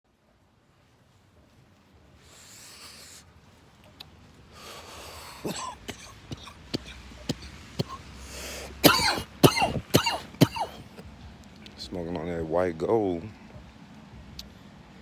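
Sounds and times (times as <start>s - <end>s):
person breathing: 2.2s - 3.2s, 4.5s - 10.9s
person coughing: 5.1s - 11.0s.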